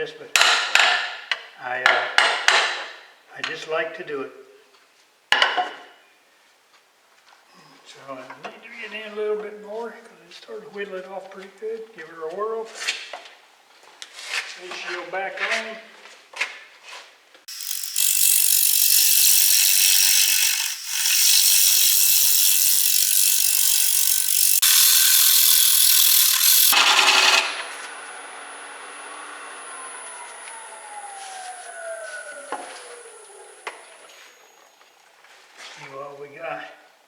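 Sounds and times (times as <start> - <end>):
tool cutting wood on lathe: 17.5 - 34.0
lathe motor whine: 17.5 - 34.4.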